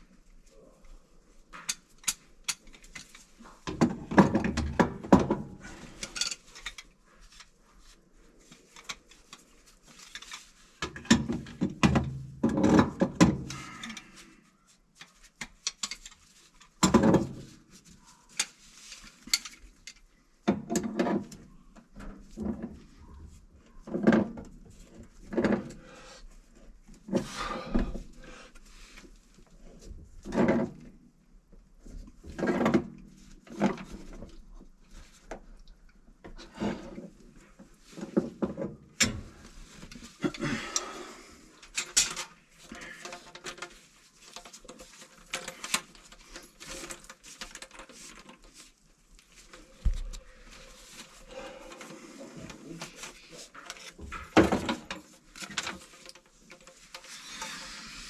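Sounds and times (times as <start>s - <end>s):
metallic clanks and rattles of tools: 1.6s - 7.5s, 15.4s - 17.4s, 18.3s - 21.4s, 41.6s - 48.6s.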